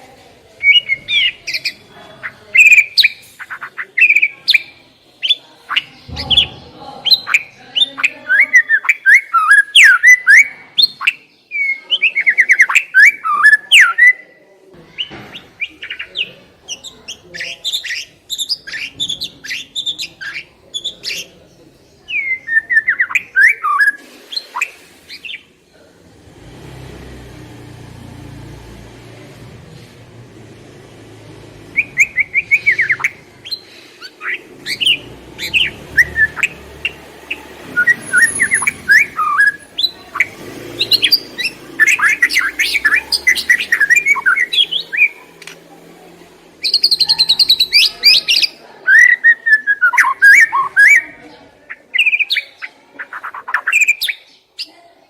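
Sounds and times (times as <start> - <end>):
songbird chirping and singing: 0.0 - 45.9, 46.5 - 54.8.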